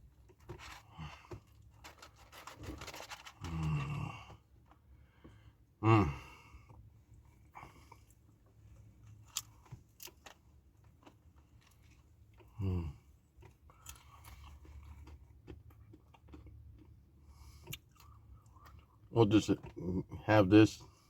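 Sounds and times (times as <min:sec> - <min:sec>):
man chewing chips: 0:00.2 - 0:04.8, 0:09.0 - 0:20.0.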